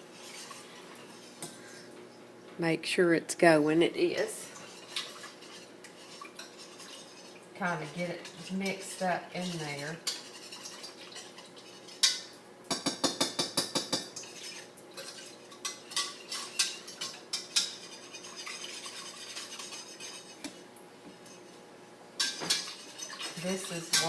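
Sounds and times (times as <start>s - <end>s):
spoon stirring in a pot: 0.0s - 1.9s, 4.1s - 24.0s.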